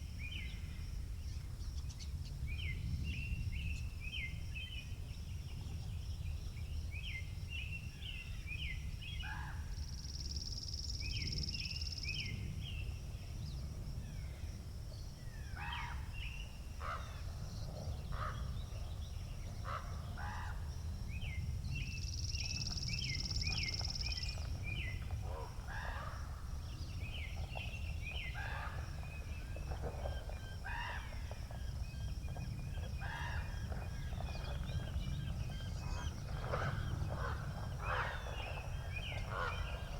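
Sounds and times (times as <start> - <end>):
wind rumbling on microphone: 0.0 - 39.9
small birds chirping: 26.5 - 39.9.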